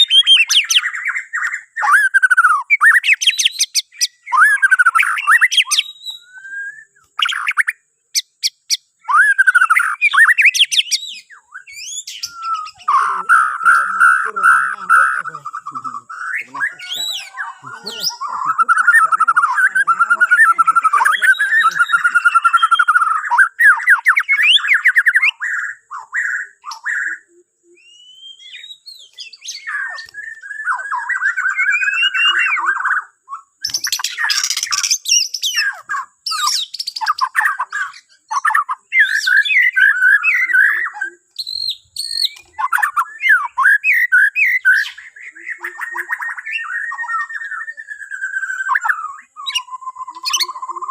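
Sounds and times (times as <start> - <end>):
songbird singing: 0.0 - 50.9.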